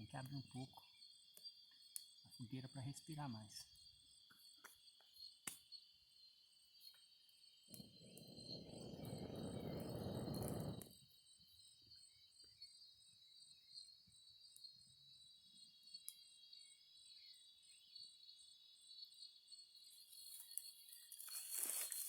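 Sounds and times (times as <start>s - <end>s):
crickets trilling: 0.0s - 22.0s
rush of air noise: 7.9s - 10.9s.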